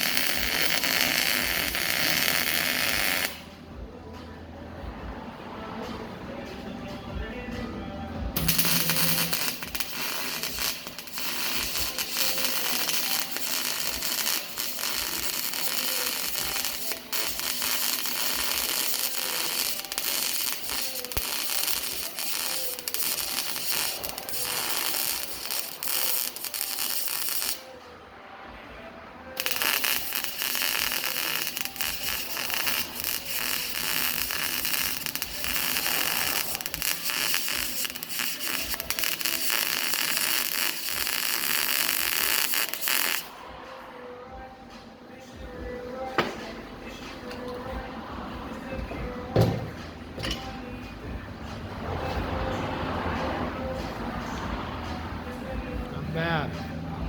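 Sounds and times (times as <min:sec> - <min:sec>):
welding arc crackling and hissing: 0:00.0 - 0:03.5, 0:08.4 - 0:27.8, 0:29.4 - 0:43.4.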